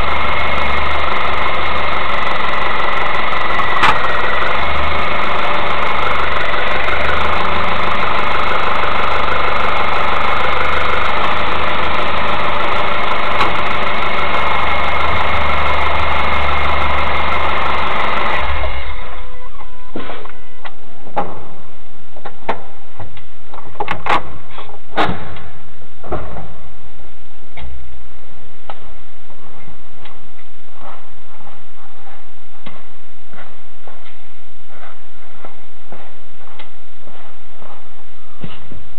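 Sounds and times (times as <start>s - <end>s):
car engine running: 0.0s - 19.6s
sharp clicks and knocks: 0.1s - 18.5s.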